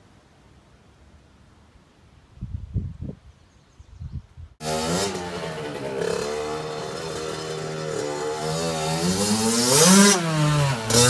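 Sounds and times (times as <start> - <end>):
two-stroke engine revving: 4.6 - 11.0.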